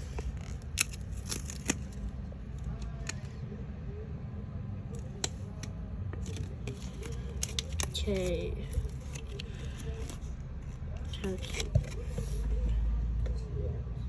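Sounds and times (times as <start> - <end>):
low background rumble: 0.0 - 14.0
scissors cutting paper: 6.2 - 12.5.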